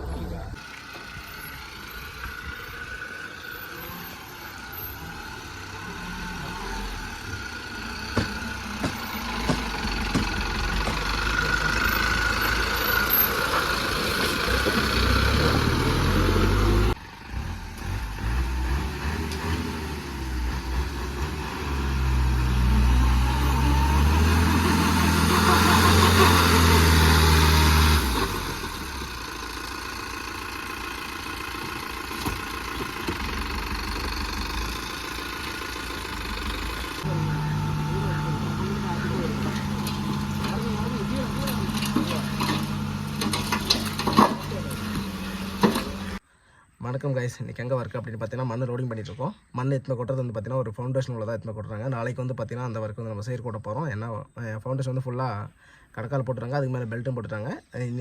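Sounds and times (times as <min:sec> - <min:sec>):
excavator diesel engine running: 0:00.0 - 0:46.2.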